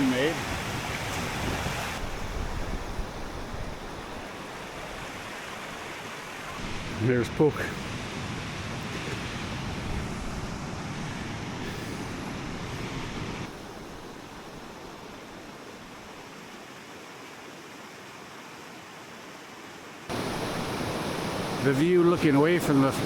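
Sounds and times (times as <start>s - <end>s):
waterfall rushing: 0.0s - 2.2s, 20.1s - 23.0s.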